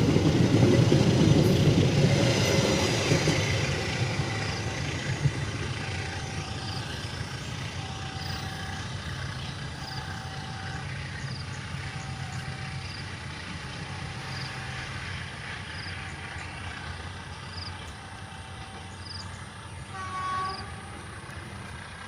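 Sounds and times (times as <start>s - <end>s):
heavy engine idling: 0.0s - 22.0s.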